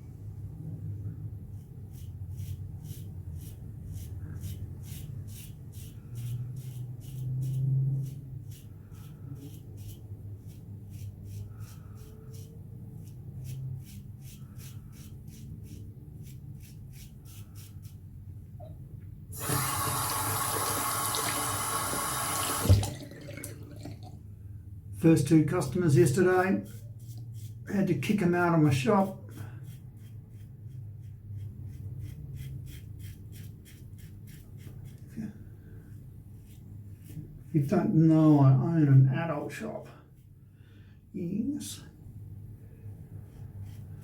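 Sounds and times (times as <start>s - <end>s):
tap water running: 19.3s - 24.2s.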